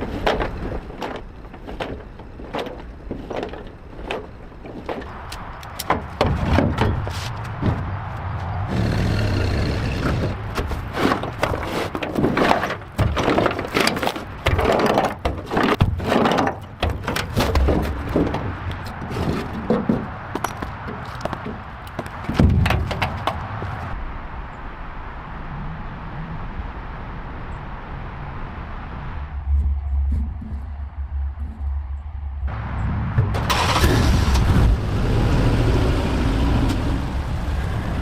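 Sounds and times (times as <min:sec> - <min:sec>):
hard objects knocking and clanking: 0:00.0 - 0:07.9, 0:10.5 - 0:23.8.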